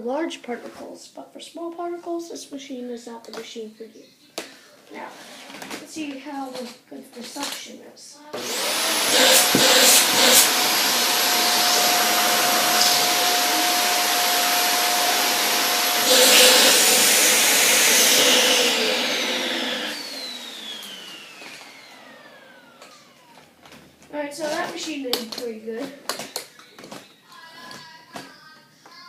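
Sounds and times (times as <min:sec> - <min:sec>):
vacuum cleaner motor whine: 0:08.3 - 0:23.8.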